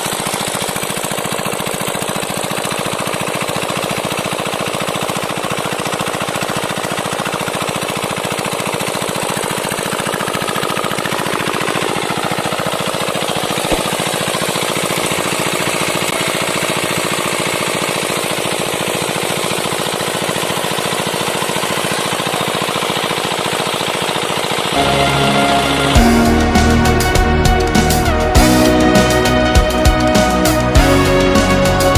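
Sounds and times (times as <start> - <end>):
small diesel engine knocking: 0.0 - 25.0.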